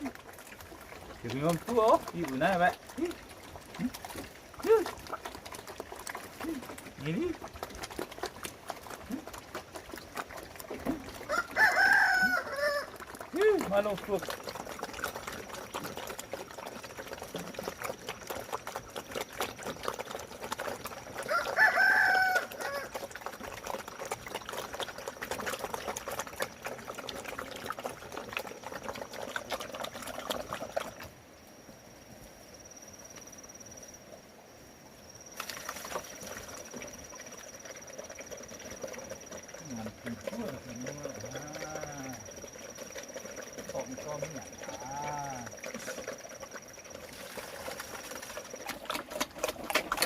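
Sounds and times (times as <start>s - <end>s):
rooster crowing: 11.3s - 13.0s, 21.2s - 22.9s.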